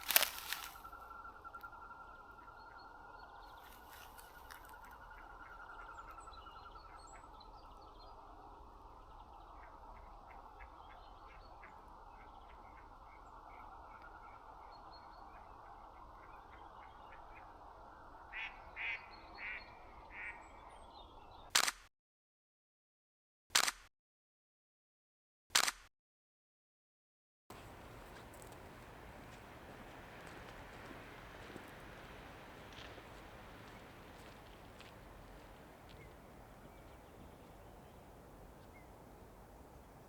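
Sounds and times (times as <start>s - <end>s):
sharp click: 25.6s - 25.8s
faint bird chirps: 27.5s - 40.0s
short loud bird calls: 27.5s - 40.0s
steady background hush: 27.5s - 40.0s.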